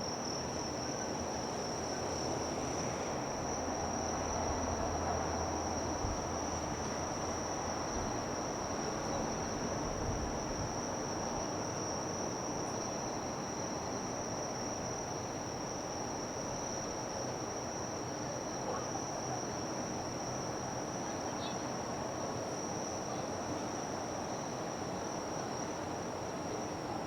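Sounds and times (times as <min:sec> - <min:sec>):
outdoor background noise: 0:00.0 - 0:27.0
insects trilling: 0:00.2 - 0:21.9.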